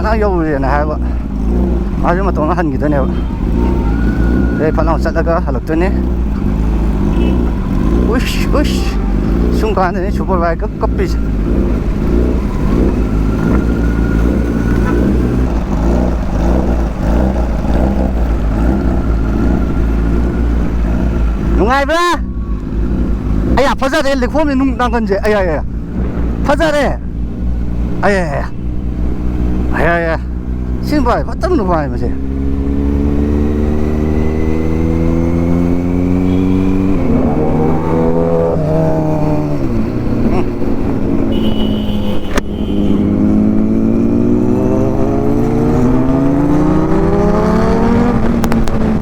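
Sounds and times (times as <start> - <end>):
motorcycle engine running: 5.6 - 23.7, 25.6 - 49.0
motorcycle engine under load: 11.2 - 21.6.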